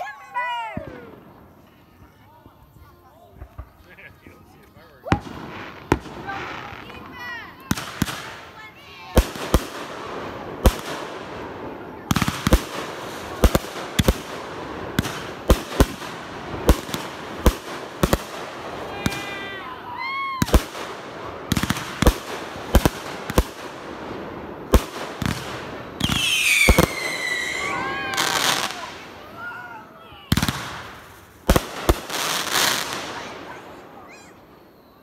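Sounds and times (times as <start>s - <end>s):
fireworks crackling: 0.0s - 35.0s
fireworks banging: 5.0s - 34.3s
firework whistles: 24.6s - 35.0s.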